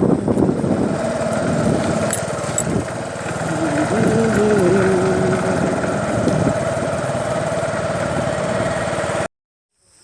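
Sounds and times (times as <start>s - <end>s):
engine idling with even chugging: 0.0s - 9.3s.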